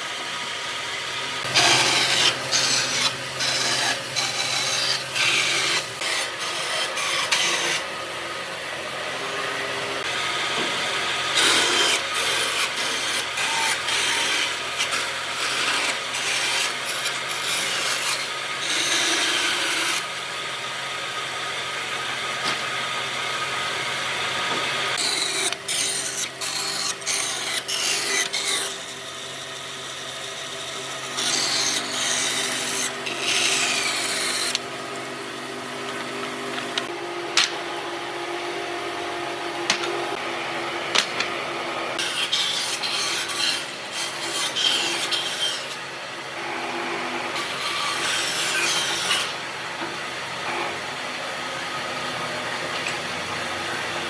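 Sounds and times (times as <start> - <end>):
power tool motor running: 0.0 - 38.6
wood cutting noise: 0.0 - 54.0.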